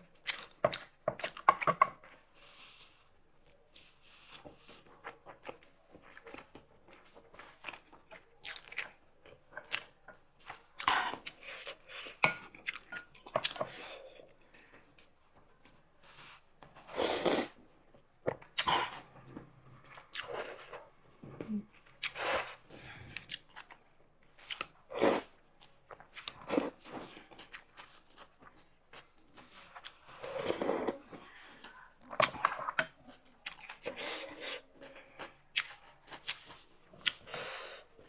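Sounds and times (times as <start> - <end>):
person chewing and smacking: 0.2 - 2.2, 3.7 - 15.1, 21.4 - 38.0.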